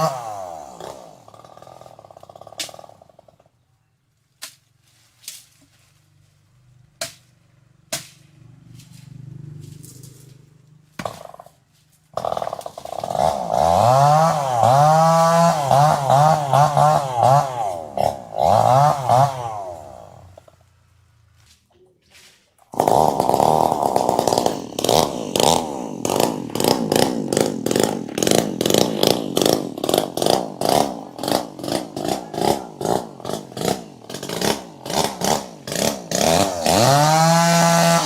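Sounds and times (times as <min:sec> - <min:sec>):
chainsaw engine idling and revving: 0:00.0 - 0:03.6, 0:06.3 - 0:21.2, 0:22.6 - 0:38.0.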